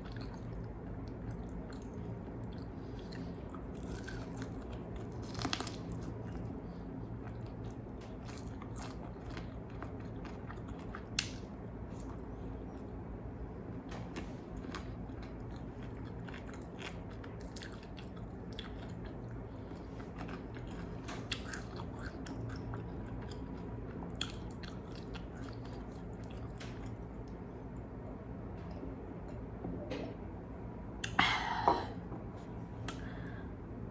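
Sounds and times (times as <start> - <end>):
chewing crispy chicken: 0.0 - 12.3, 14.2 - 27.4.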